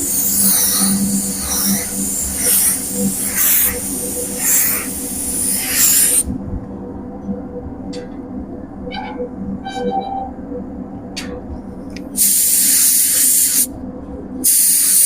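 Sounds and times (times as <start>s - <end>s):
paint spray gun hissing: 0.0s - 6.2s, 12.2s - 13.7s, 14.4s - 15.0s
steady low hum: 0.0s - 15.0s.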